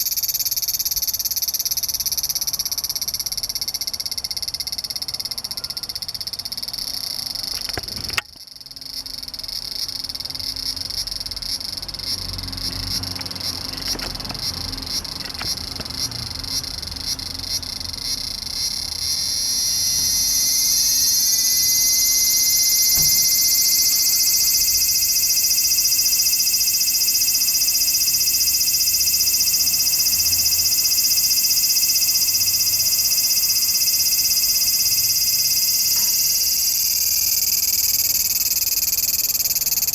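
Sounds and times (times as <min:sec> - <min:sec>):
cicadas droning: 0:00.0 - 0:39.9
sharp click: 0:07.5 - 0:08.4, 0:13.1 - 0:16.1.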